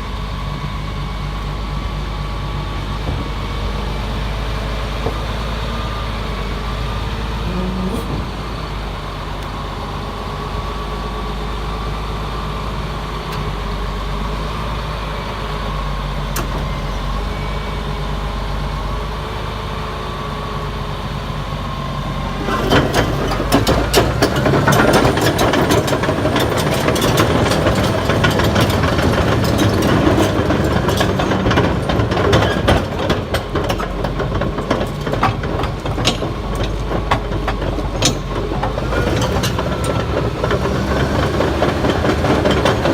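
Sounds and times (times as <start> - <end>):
diesel engine running: 0.0 - 42.9
steel tracks clanking: 22.3 - 42.9.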